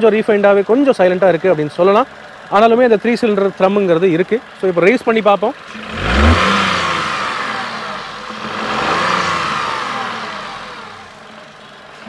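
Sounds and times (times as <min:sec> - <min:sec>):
car engine revving: 0:05.5 - 0:12.0.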